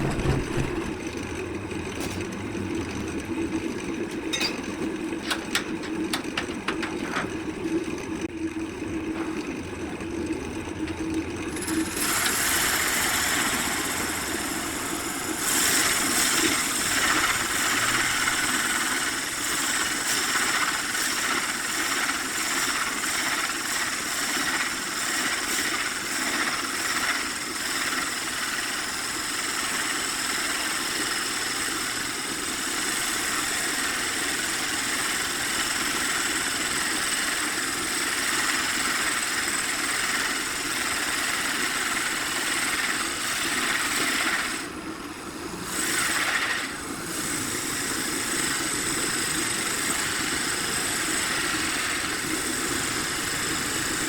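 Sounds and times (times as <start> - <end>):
power tool whining on wood: 11.4 - 54.0.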